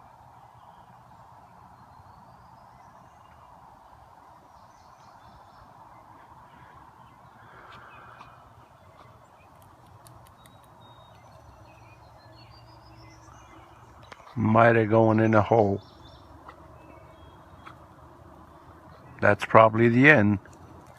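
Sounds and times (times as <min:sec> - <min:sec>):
bird chirps: 0:04.5 - 0:19.2.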